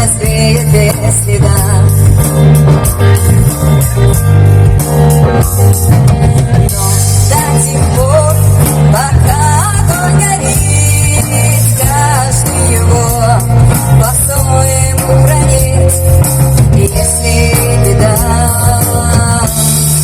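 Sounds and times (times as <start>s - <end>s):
rock band playing: 0.0s - 20.0s
person singing: 6.7s - 19.8s.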